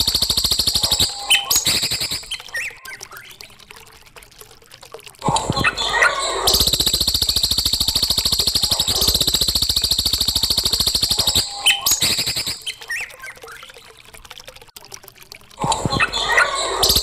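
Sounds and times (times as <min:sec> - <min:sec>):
songbird chirping and trilling: 0:01.0 - 0:03.4, 0:11.2 - 0:13.7.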